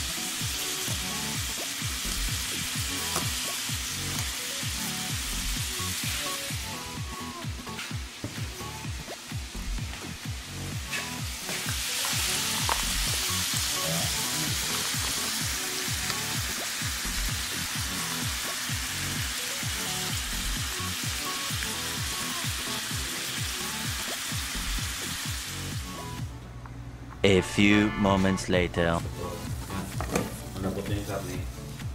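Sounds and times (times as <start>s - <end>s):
meat sizzling in oil: 0.0s - 26.0s
background music: 0.0s - 31.9s.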